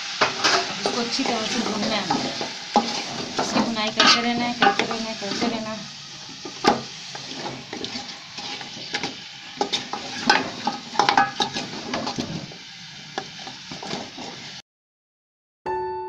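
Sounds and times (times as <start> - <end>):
meat sizzling in a pot: 0.0 - 14.6
spoon scraping a metal pot: 0.2 - 5.6, 6.4 - 12.5, 13.2 - 14.5
soft piano music: 15.7 - 16.0.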